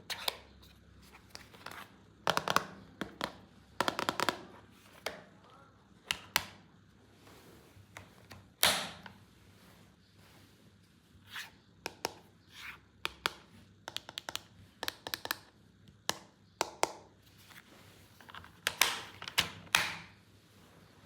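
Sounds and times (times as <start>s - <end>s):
plastic toys clicking and tapping: 13.1s - 17.0s.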